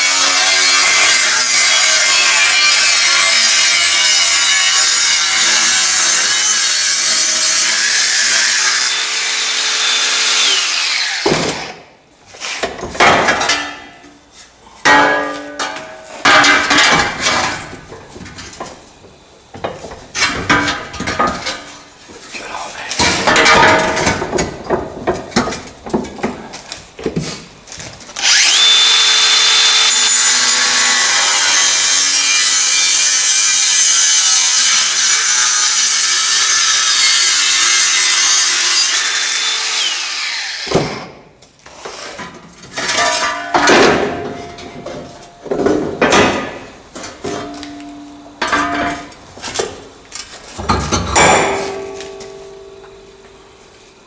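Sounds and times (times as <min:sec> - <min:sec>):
angle grinder cutting steel: 0:00.0 - 0:11.2, 0:28.2 - 0:40.7.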